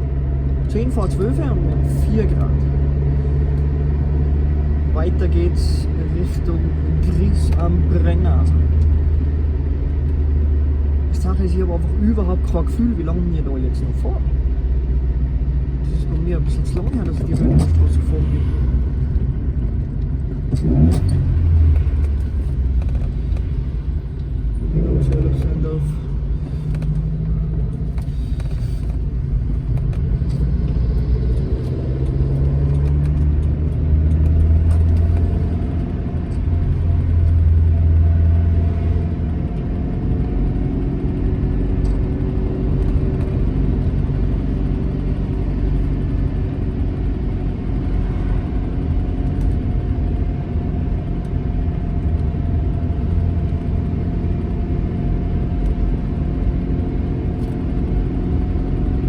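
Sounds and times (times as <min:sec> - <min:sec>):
car engine pulling: 0:00.0 - 0:59.0.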